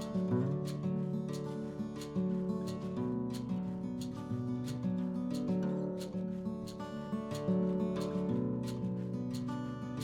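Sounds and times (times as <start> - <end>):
strummed acoustic guitar music: 0.0 - 10.0.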